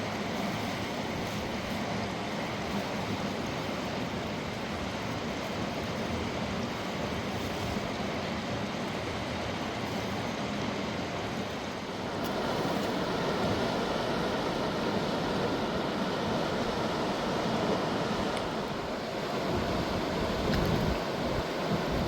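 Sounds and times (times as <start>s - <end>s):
rushing river water: 0.0s - 22.0s.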